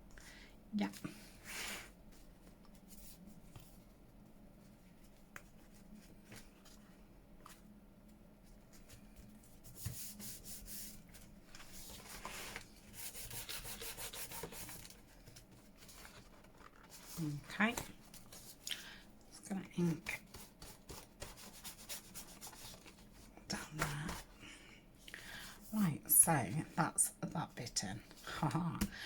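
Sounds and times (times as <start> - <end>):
hands rubbing paper: 8.7 - 18.6, 19.8 - 24.3.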